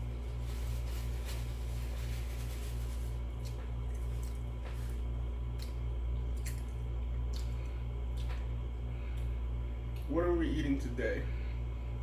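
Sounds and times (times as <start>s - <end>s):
steady low hum: 0.0s - 12.0s
person chewing food: 3.3s - 9.3s.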